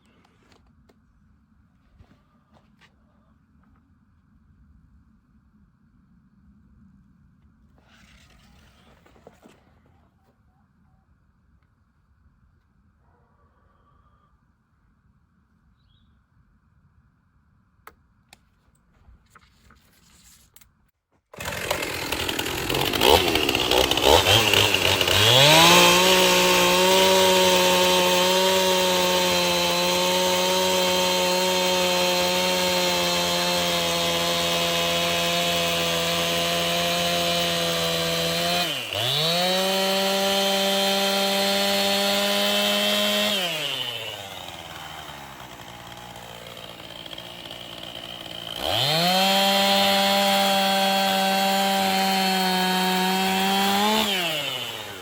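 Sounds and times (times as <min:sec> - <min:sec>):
chainsaw ripping a board: 0:21.3 - 0:55.0.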